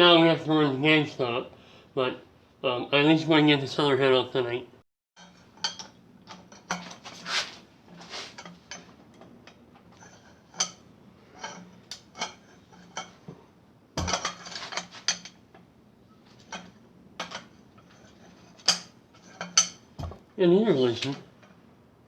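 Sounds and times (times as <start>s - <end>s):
hand tools clanking on metal: 5.2s - 13.4s, 14.0s - 15.6s, 16.3s - 20.2s.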